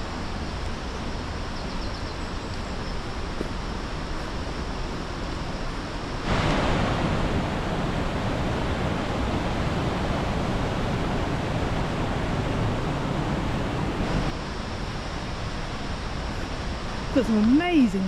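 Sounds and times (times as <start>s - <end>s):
white water rushing: 6.0s - 14.4s.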